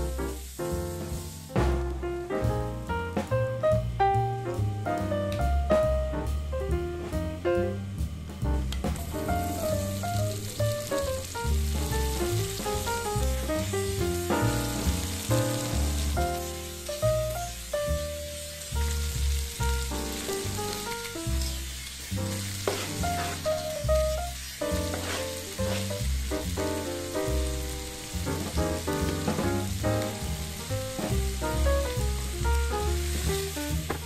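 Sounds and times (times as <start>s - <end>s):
vegetables sizzling in a pan: 0.0s - 6.5s, 7.1s - 34.0s
background music: 0.0s - 21.6s.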